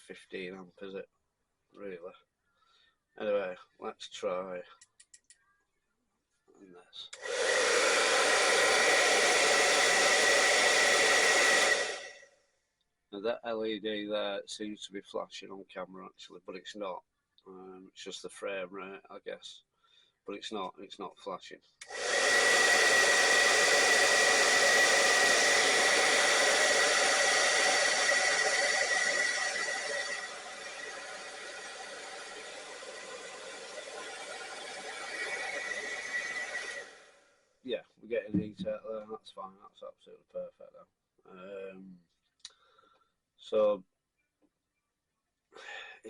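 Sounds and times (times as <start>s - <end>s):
hairdryer running with high whine: 7.2s - 12.2s, 21.8s - 37.2s.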